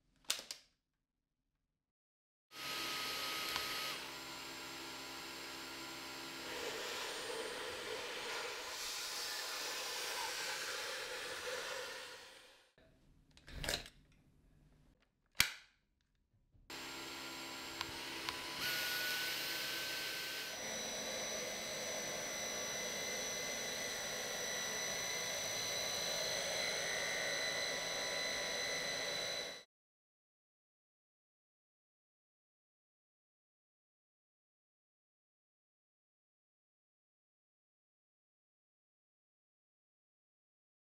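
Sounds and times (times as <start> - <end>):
cordless vacuum cleaner running: 2.6 - 12.6, 16.7 - 29.7.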